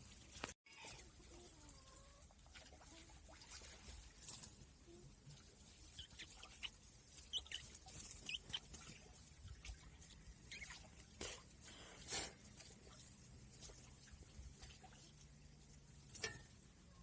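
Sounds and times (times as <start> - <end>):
small birds chirping: 5.7 - 11.0.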